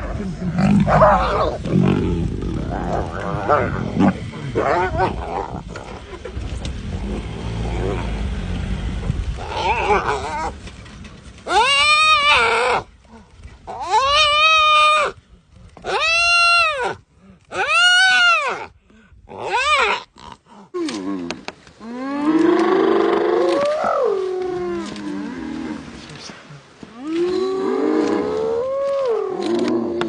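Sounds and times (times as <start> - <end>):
lion calling: 0.0 - 8.3.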